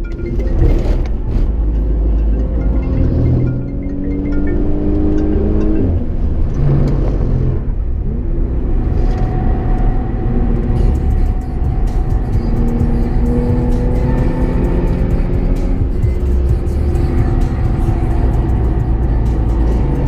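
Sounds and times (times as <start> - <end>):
background music: 0.0 - 6.3, 10.4 - 20.0
car engine revving: 0.0 - 20.0
road noise: 0.0 - 20.0.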